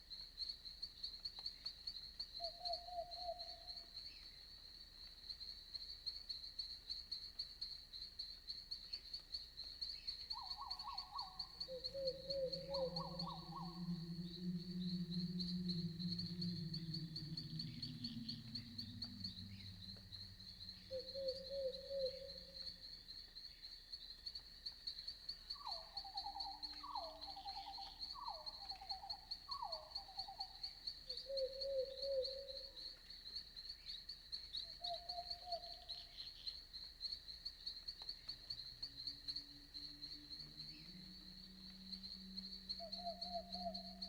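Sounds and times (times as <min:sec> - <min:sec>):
night insects trilling: 0:00.0 - 0:44.0
short pulsed animal calls: 0:10.4 - 0:22.7
low sound: 0:12.0 - 0:21.1.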